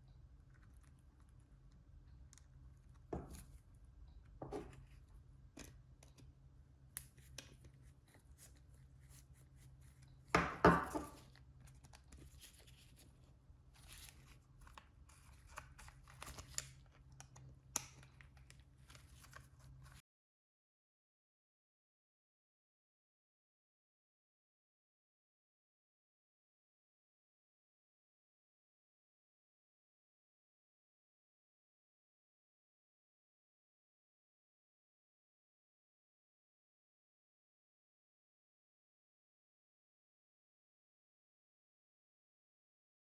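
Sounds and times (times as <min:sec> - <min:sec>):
low steady hum: 0:00.0 - 0:20.0
clicks and rustles of handling: 0:00.5 - 0:20.0.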